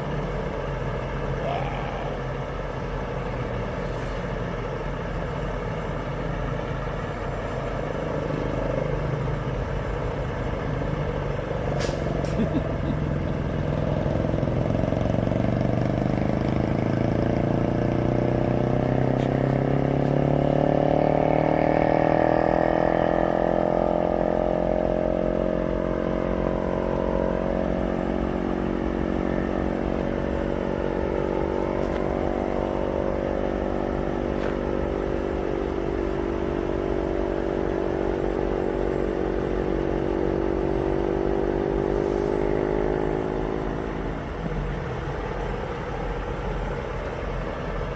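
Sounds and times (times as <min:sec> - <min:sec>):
diesel engine revving: 0:00.0 - 0:47.9.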